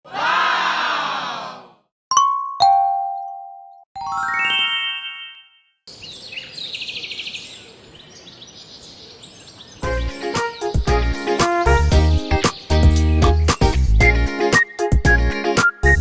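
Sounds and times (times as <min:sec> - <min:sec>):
rising run of chiming tones: 0:04.0 - 0:05.7
outdoor background noise: 0:05.9 - 0:11.0
birds chirping in a trill: 0:05.9 - 0:15.0.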